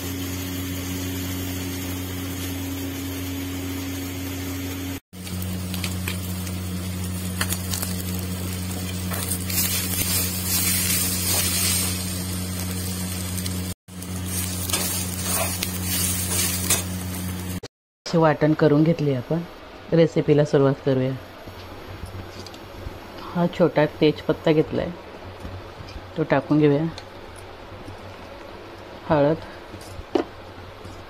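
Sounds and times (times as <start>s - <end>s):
food sizzling in oil: 0.0s - 17.6s
steady low hum: 0.0s - 31.0s.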